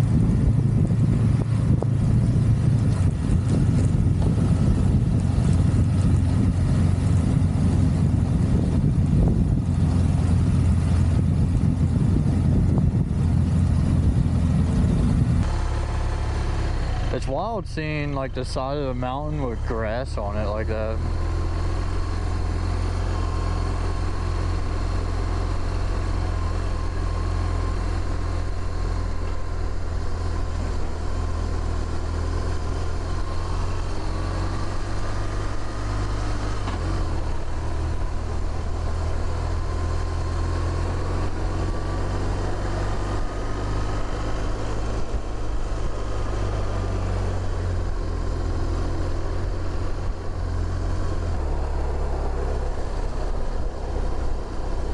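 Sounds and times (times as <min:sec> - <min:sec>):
wind rushing over microphone: 0:00.0 - 0:16.1
motorcycle engine humming: 0:00.0 - 0:54.9.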